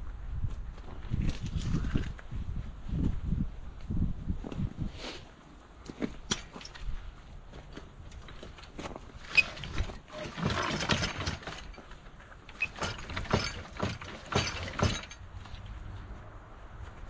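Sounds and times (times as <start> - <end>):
metal scraping: 9.2 - 15.8
sharp metal knocks and clanks: 9.3 - 15.6.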